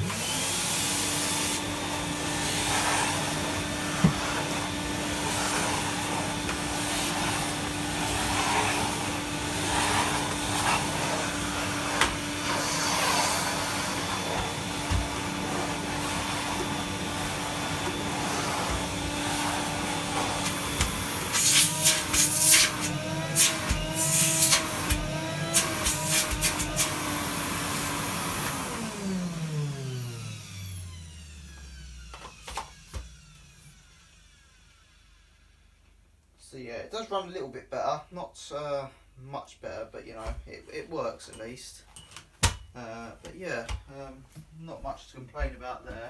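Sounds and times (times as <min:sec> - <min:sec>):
vacuum cleaner humming: 0:00.0 - 0:35.7.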